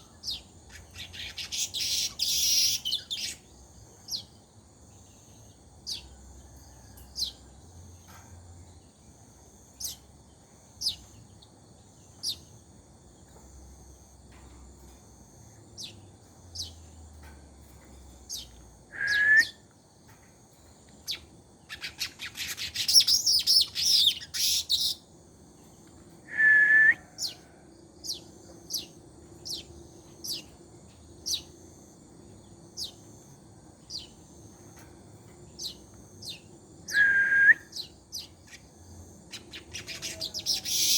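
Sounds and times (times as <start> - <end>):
rapid chattering birdsong: 0.0 - 6.1, 20.6 - 25.7, 28.0 - 31.6, 37.7 - 40.9
birds chirping: 0.0 - 6.3, 15.6 - 19.7, 20.6 - 25.9, 28.0 - 30.6, 32.3 - 40.9.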